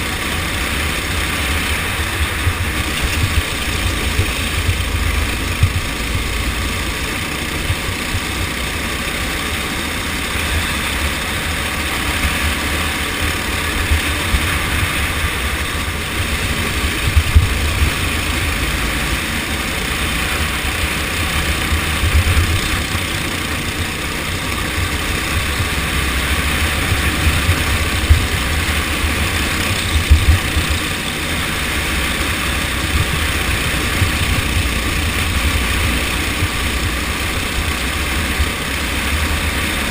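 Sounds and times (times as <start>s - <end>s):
kart engine running: 0.0s - 39.9s.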